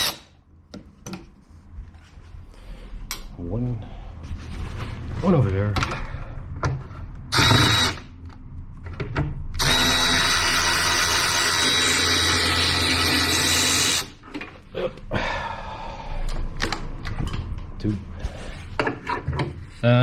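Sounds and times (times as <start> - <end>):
cordless power tool whining: 7.3 - 8.0, 9.6 - 14.1.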